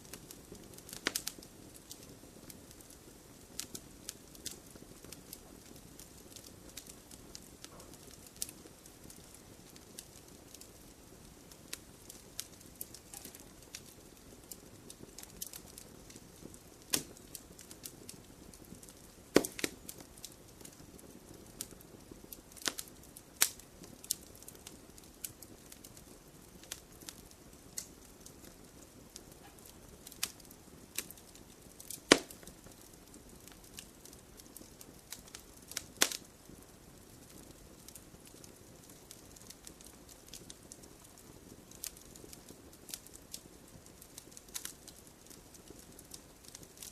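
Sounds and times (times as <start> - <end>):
campfire flame rush: 0.0 - 46.9
wood crackling and popping: 0.0 - 46.9
loud wood snaps: 19.4 - 19.8, 31.9 - 32.4, 36.0 - 36.2.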